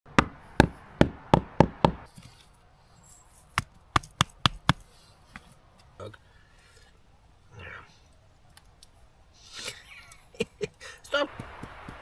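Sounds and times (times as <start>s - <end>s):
wood chopping strikes: 0.1s - 2.1s, 3.5s - 4.8s.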